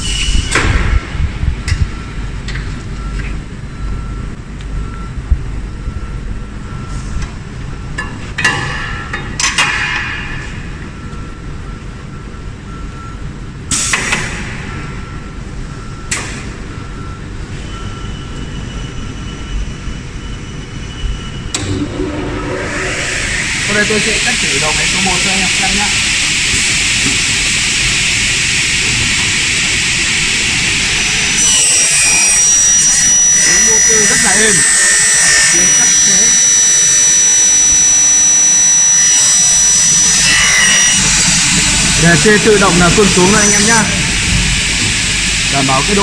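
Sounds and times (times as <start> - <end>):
steady low hum: 29.5 - 45.6.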